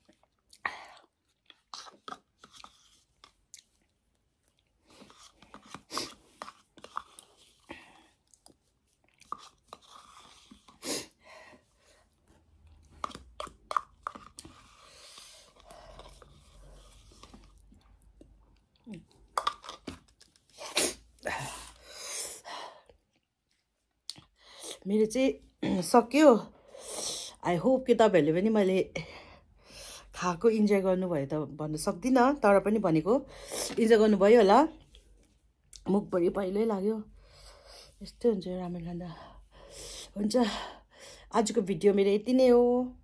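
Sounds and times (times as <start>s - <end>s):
person chewing: 0.0s - 10.9s, 12.2s - 21.8s, 22.8s - 24.3s.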